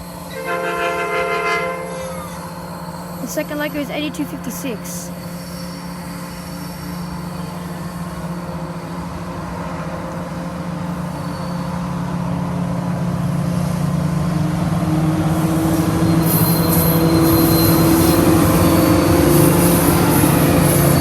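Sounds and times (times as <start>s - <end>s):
locomotive engines under load: 0.0s - 5.2s.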